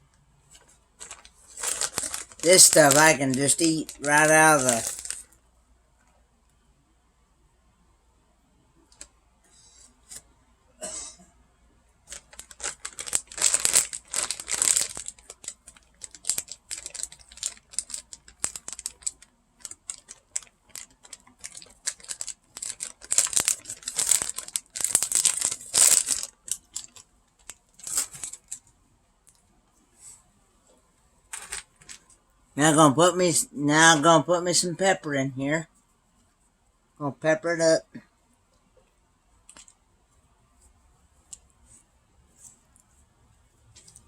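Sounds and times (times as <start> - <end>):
plastic packaging crinkling: 0.6 - 5.4, 12.1 - 28.7, 31.3 - 35.2.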